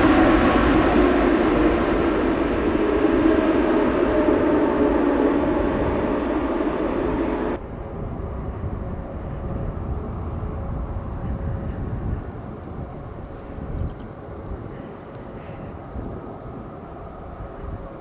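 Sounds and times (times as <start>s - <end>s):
low rumble with faint tone: 0.0s - 13.5s
jet engines running loud: 0.0s - 18.0s.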